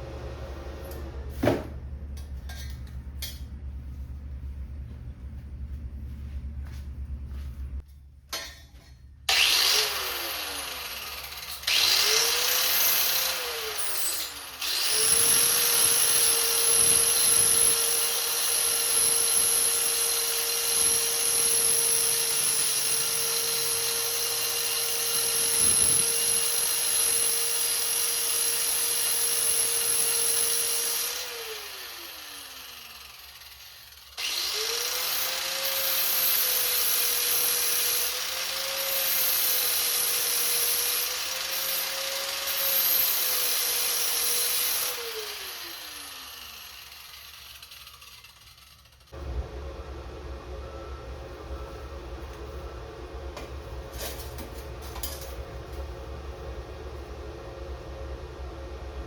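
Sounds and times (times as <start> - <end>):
angle grinder grinding steel: 9.3 - 49.4.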